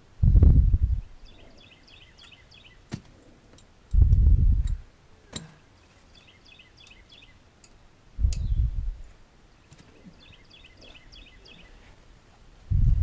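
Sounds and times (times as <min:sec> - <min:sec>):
low rumble: 0:00.0 - 0:01.2, 0:03.9 - 0:04.8, 0:08.2 - 0:09.1, 0:12.7 - 0:13.0
small bird chirping: 0:00.8 - 0:02.8, 0:05.8 - 0:07.4, 0:08.2 - 0:08.8, 0:09.6 - 0:11.9.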